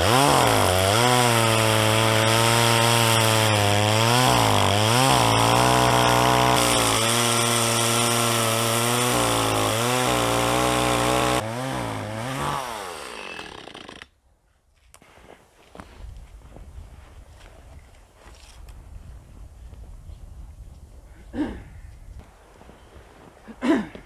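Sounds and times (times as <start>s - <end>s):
chainsaw sawing log: 0.0s - 14.1s.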